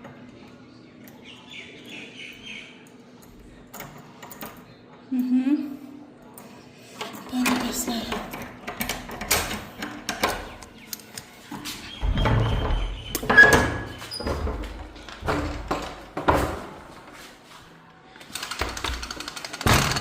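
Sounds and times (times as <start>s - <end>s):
kitchen knocks and clicks: 7.0s - 17.0s.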